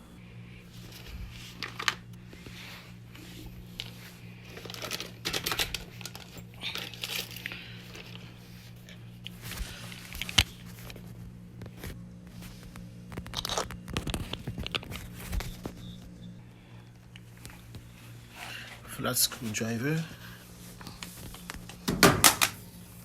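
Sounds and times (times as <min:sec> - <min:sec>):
steady low hum: 0:00.0 - 0:23.0
rustling and scraping tools: 0:00.8 - 0:11.1.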